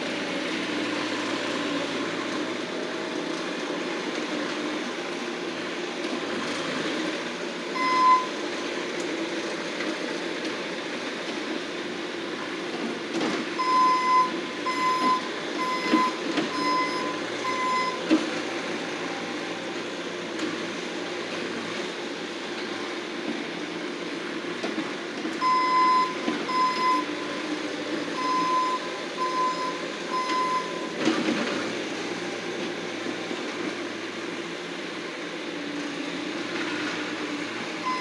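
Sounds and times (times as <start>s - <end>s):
loader engine running: 0.0s - 38.0s
backup alarm beeps: 7.8s - 8.3s, 13.6s - 18.0s, 25.4s - 27.1s, 28.2s - 30.9s.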